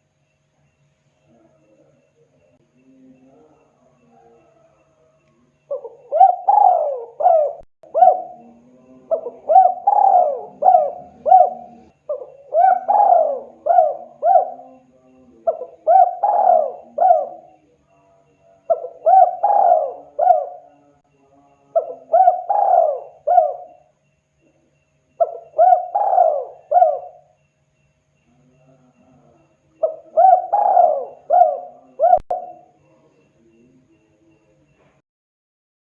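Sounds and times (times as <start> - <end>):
dove cooing: 5.7 - 17.8, 18.7 - 21.0, 21.7 - 23.9, 25.2 - 27.4, 28.4 - 33.6.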